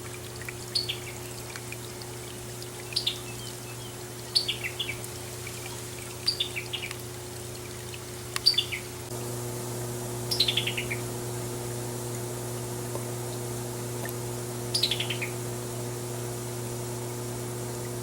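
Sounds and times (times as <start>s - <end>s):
bird calling clipped notes: 6.2s - 7.0s, 8.4s - 8.8s, 14.7s - 15.4s.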